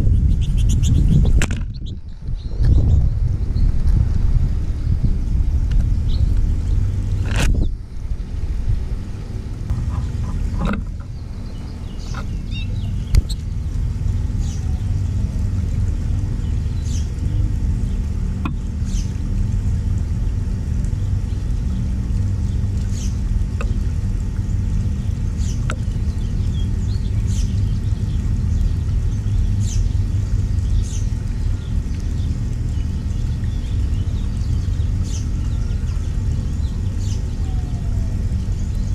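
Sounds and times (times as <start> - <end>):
low rumble: 0.0 - 38.9
high bird chirps: 11.1 - 13.5.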